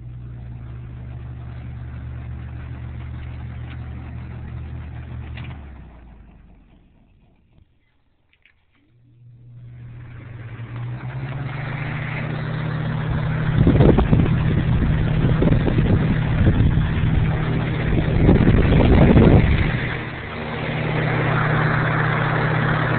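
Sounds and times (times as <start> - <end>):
fan motor hum: 0.0 - 22.9
rush of air from fan: 9.2 - 22.9.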